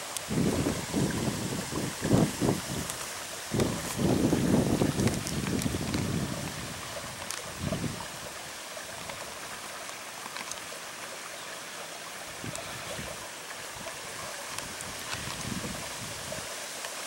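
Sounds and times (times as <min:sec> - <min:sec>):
brook babbling over stones: 0:00.0 - 0:17.0
wind buffeting microphone: 0:00.2 - 0:09.4, 0:12.3 - 0:16.5.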